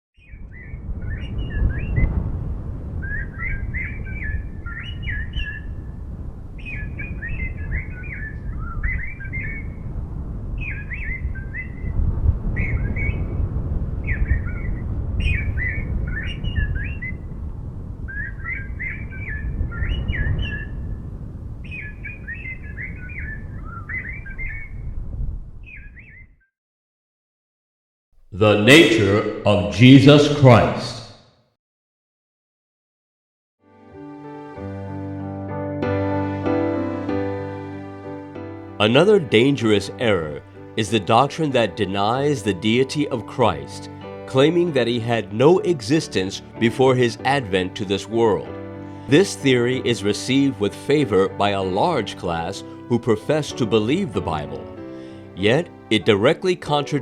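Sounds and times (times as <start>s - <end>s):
songbird warbling: 0.2s - 2.1s, 3.0s - 5.9s, 6.6s - 9.8s, 10.6s - 12.0s, 12.6s - 13.4s, 14.0s - 17.3s, 18.1s - 20.9s, 21.6s - 24.8s, 25.6s - 26.3s.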